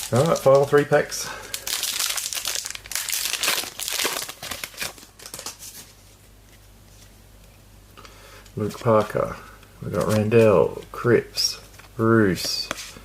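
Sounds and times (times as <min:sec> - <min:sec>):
wrapper being torn and crinkled: 0:00.0 - 0:05.8.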